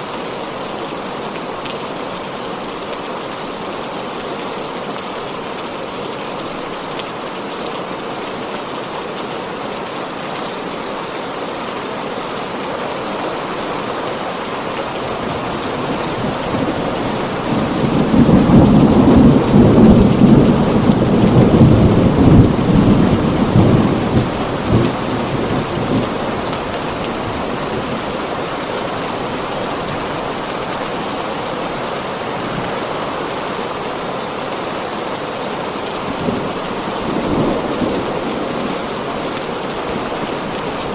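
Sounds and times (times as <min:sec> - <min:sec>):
heavy rain: 0:00.0 - 0:40.9
thunder rumbling: 0:12.5 - 0:30.6.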